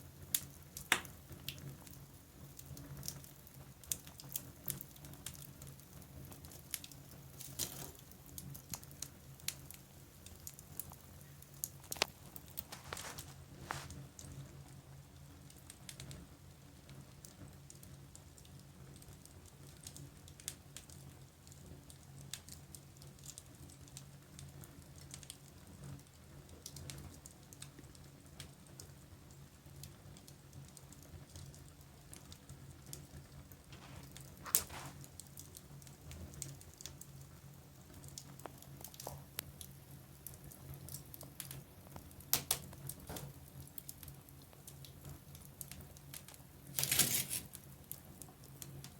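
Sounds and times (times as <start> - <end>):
wood fire crackling: 0.0 - 48.9
sharp pop from fire: 0.8 - 1.2, 42.3 - 43.4.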